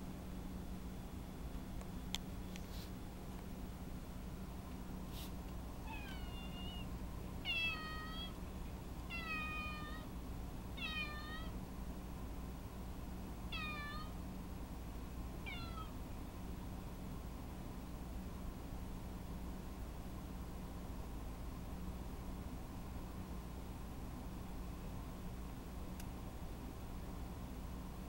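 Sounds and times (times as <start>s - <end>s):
cat meowing: 5.8s - 8.4s, 9.1s - 10.1s, 10.8s - 11.6s, 13.5s - 14.2s, 15.4s - 16.0s.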